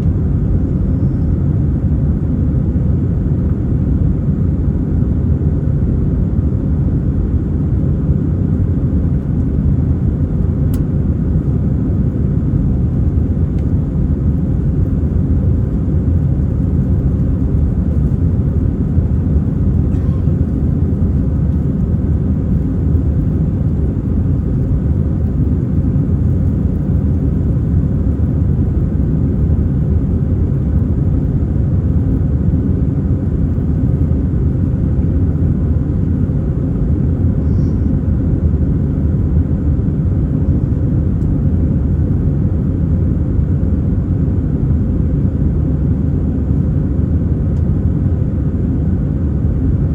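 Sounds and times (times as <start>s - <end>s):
airplane cabin rumble in flight: 0.0s - 49.9s.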